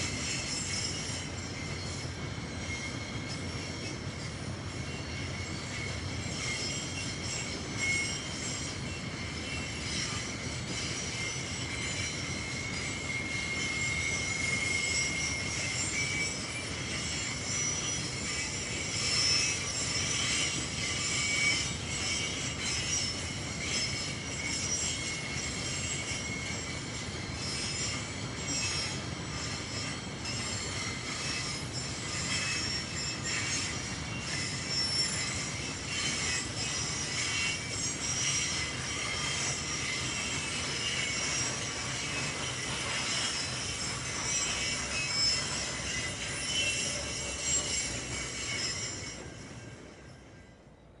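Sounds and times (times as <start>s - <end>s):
wheel squeal: 0.0s - 51.0s.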